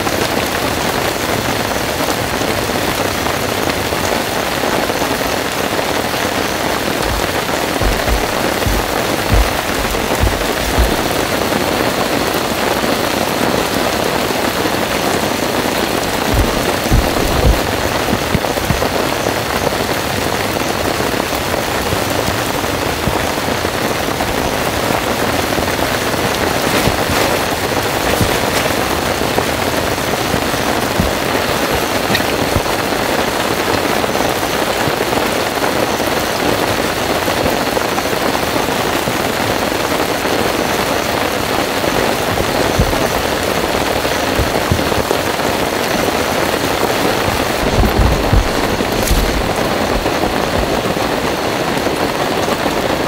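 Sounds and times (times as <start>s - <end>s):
heavy rain pouring: 0.0s - 53.0s
low thumps: 6.9s - 11.5s, 16.1s - 19.2s, 47.0s - 50.8s.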